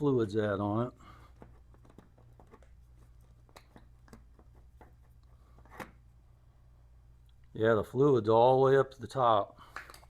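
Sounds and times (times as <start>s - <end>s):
low steady hum: 0.0s - 10.0s
small clicks and taps: 3.4s - 5.9s.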